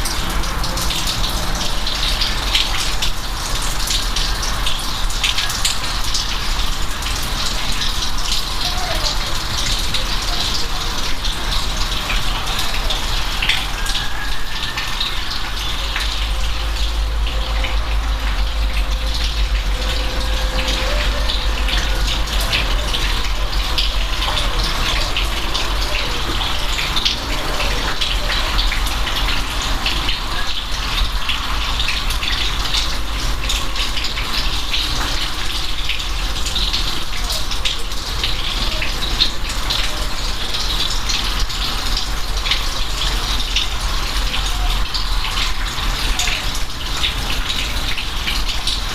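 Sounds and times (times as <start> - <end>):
steady rain: 0.0 - 48.9
low rumble: 15.7 - 25.8.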